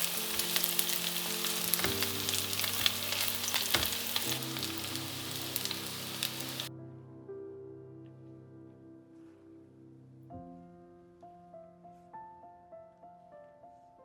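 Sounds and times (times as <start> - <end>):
food sizzling in oil: 0.0 - 6.7
quiet background music: 0.0 - 14.0.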